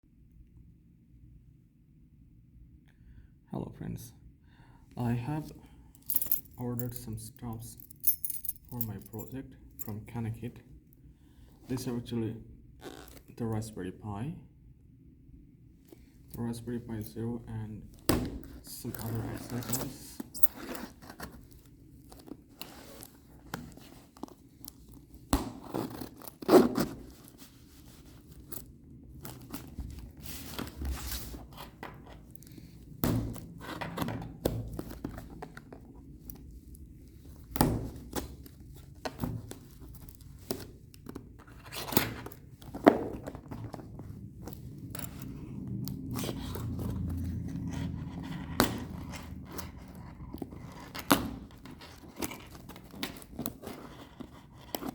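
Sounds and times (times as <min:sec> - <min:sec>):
boxes and packaging being opened: 0:18.4 - 0:54.9.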